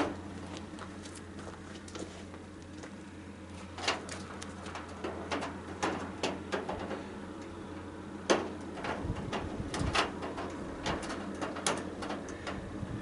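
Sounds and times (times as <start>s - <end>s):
steady low hum: 0.0s - 13.0s
clicks and knocks on metal: 3.8s - 7.6s, 8.2s - 12.6s.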